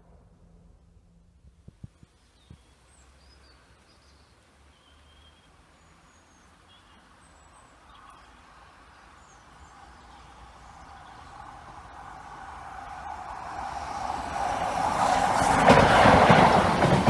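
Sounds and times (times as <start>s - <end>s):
approaching train: 0.0s - 2.5s, 6.4s - 17.0s
faint birds chirping: 1.7s - 13.2s.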